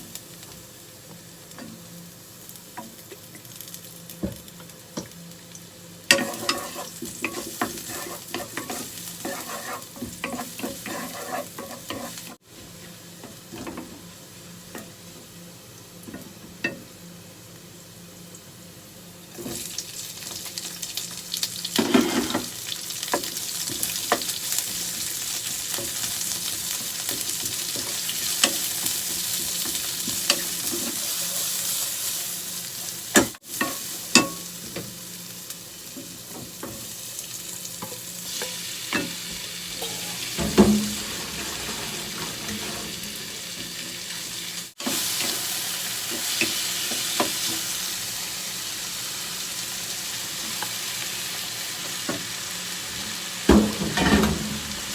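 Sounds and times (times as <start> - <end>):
food sizzling in a frying pan: 0.0 - 54.9
utensil scraping against pan: 6.1 - 12.4, 21.8 - 22.5, 39.8 - 43.8.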